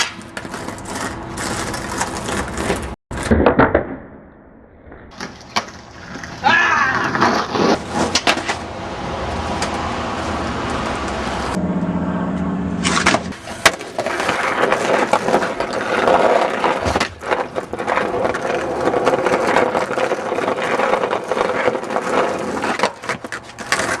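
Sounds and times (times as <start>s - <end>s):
skateboard wheels rolling on concrete: 0.0s - 3.9s, 5.0s - 11.6s, 12.3s - 24.0s
skateboard clacks and knocks: 5.1s - 8.6s, 12.9s - 24.0s.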